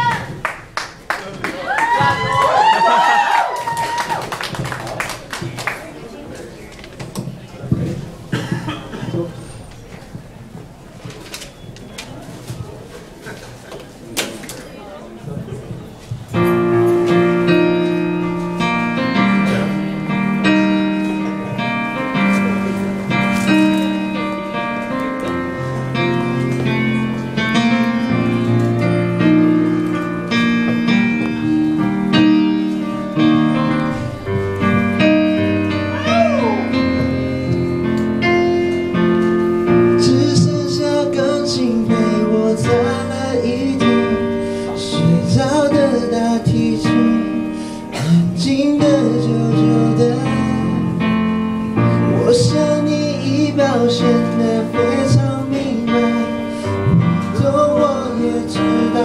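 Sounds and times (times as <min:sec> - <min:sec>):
slow piano ballad: 0:16.2 - 0:59.0.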